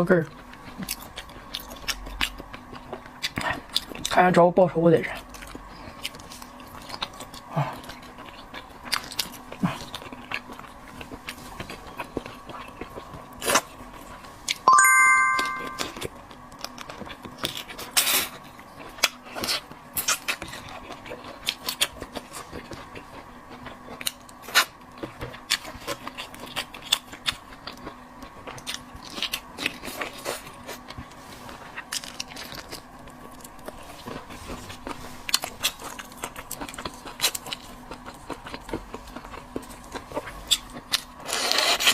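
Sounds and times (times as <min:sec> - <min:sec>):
chewing and biting: 0:00.2 - 0:04.3, 0:05.0 - 0:14.6, 0:16.1 - 0:41.9
high ringing tone: 0:14.7 - 0:16.0.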